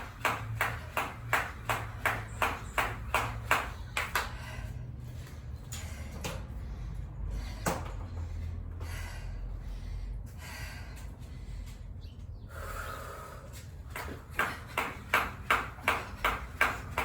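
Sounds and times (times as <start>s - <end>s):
person breathing hard: 4.1s - 15.2s.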